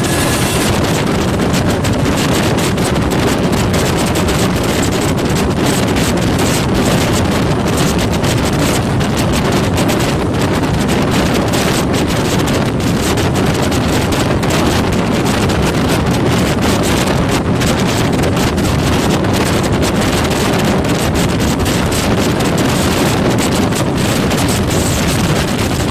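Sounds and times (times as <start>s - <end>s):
vehicle rumble: 0.0s - 20.1s
wind buffeting microphone: 0.0s - 25.9s.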